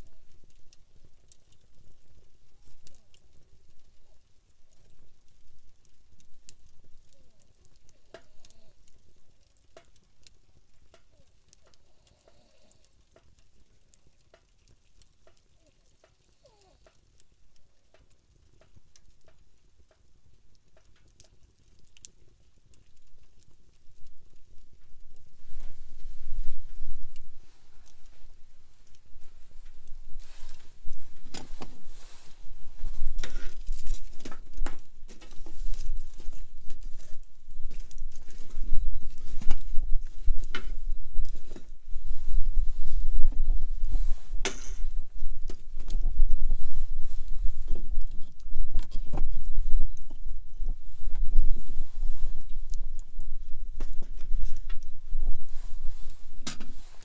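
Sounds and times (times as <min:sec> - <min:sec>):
campfire crackling: 0:00.0 - 0:57.0.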